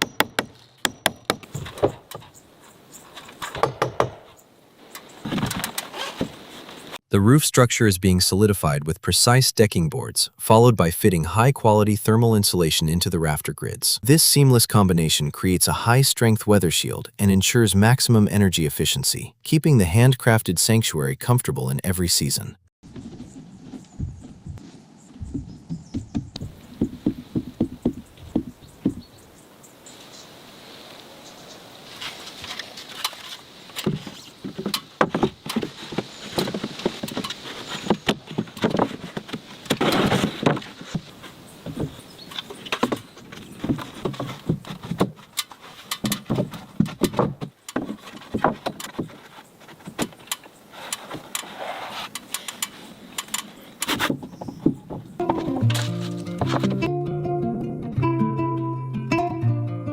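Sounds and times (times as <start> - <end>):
wooden boards knocking: 0.0 - 2.3, 3.3 - 4.4, 33.8 - 50.4, 54.0 - 56.9.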